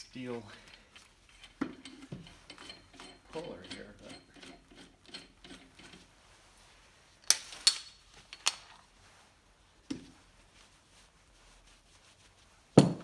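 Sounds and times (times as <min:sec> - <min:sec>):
metal tools clicking and clinking: 0:00.4 - 0:06.1, 0:07.2 - 0:08.7.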